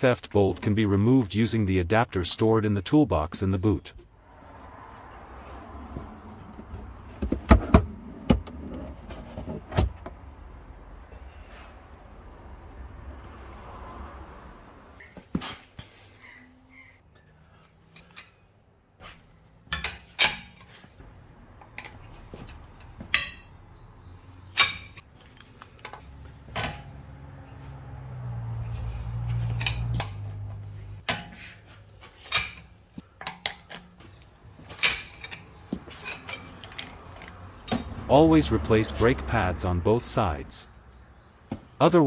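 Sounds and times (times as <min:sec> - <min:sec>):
metal hand tools clinking: 0:32.2 - 0:39.4.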